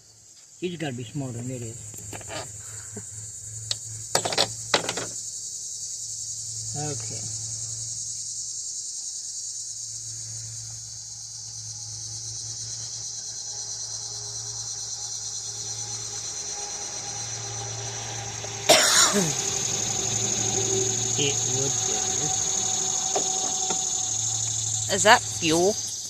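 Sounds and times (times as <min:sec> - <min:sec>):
high hiss: 0:00.0 - 0:26.0
low hum: 0:11.7 - 0:26.0
man coughing loudly: 0:18.7 - 0:19.4.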